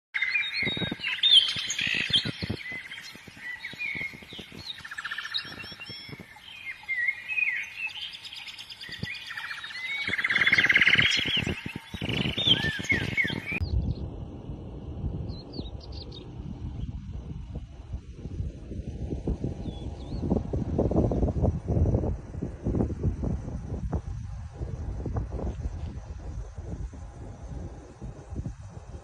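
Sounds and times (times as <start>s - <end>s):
birds chirping: 0.2s - 14.1s, 15.2s - 18.0s, 18.8s - 21.4s
low rumble: 10.1s - 29.0s.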